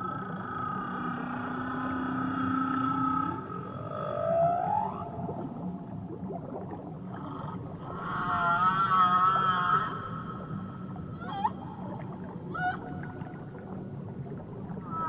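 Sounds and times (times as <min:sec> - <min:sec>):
underwater water noise: 0:00.0 - 0:15.0
whale song underwater: 0:00.0 - 0:15.0.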